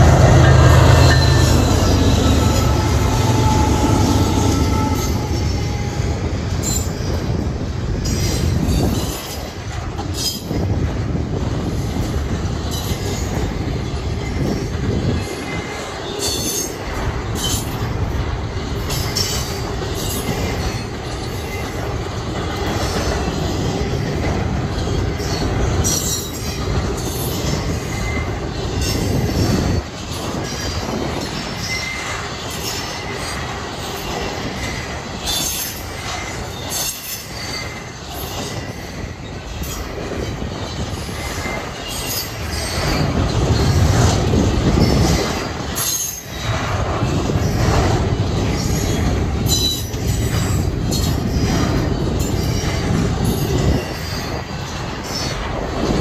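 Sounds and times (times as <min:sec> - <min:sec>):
freight train rumbling past: 0:00.0 - 0:56.0
faint high wheel squeal: 0:00.2 - 0:07.2, 0:30.1 - 0:43.8.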